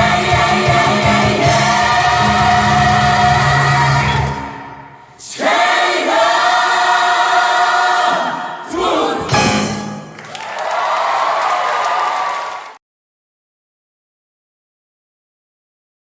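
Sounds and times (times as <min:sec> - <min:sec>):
gospel choir singing: 0:00.0 - 0:10.2.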